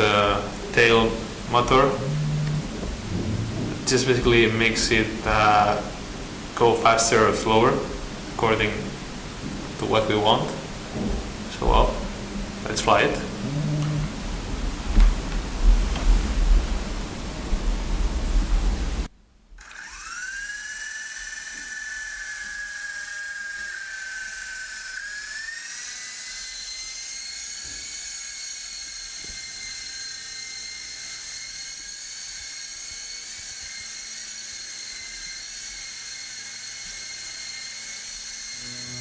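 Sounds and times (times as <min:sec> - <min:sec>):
toy helicopter motors whining: 0:19.6 - 0:39.0.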